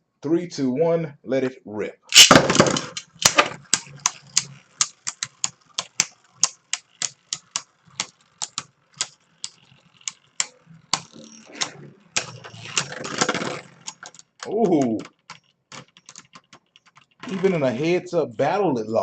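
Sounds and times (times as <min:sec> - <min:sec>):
spinning tops clashing plastic clacks: 0:02.1 - 0:17.9
plastic rattle: 0:02.1 - 0:18.0
faint whir of spinning tops: 0:02.9 - 0:18.1.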